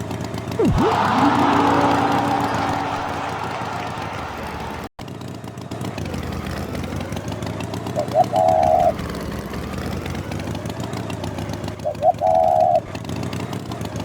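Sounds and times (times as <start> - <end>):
engine-like rumble: 0.0 - 14.0
pitched blips and toot: 0.6 - 4.6.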